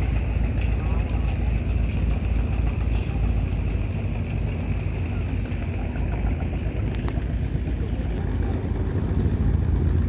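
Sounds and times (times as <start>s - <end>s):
boat engine humming: 0.0s - 10.0s
rough water: 0.0s - 10.0s
wind rumble: 0.0s - 10.0s.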